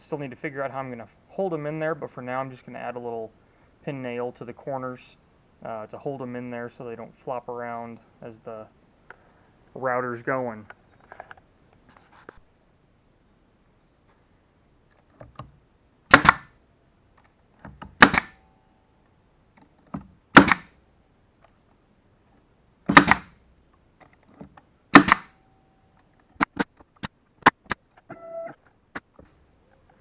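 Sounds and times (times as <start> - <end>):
pin nailer firing: 16.1 - 16.6, 17.8 - 18.4, 20.3 - 20.8, 22.9 - 23.4, 24.9 - 25.4
tool knocking on wood: 20.0 - 20.6, 22.9 - 23.3.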